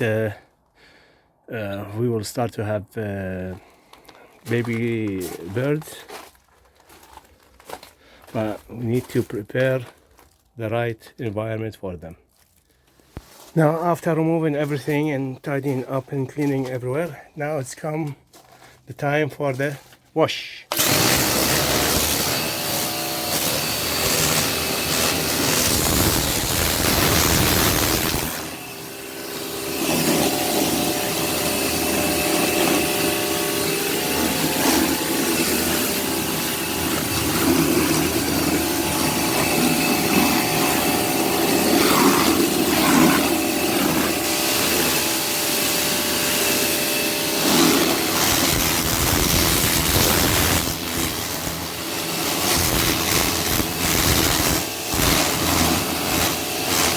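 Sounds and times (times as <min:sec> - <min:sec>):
pressure washer motor drone: 0:20.7 - 0:56.9.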